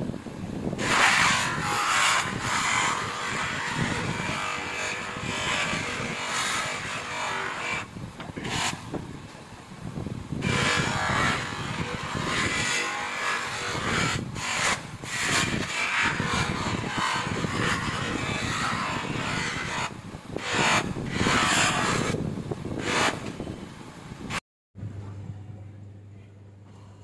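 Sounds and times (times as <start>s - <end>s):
power polisher on metal: 0.8s - 8.8s, 10.4s - 22.2s.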